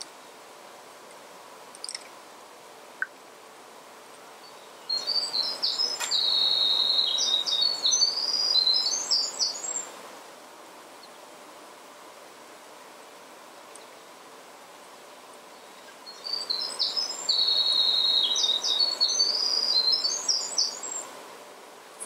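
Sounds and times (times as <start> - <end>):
steady background hiss: 0.0 - 22.0
songbird singing: 4.0 - 10.0, 13.6 - 14.1, 15.2 - 21.2
faint bird chirps: 4.4 - 9.9, 15.5 - 21.0.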